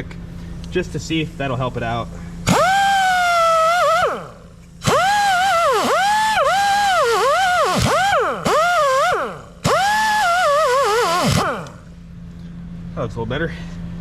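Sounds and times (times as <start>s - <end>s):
power tool wire wheel whining: 1.1s - 12.0s.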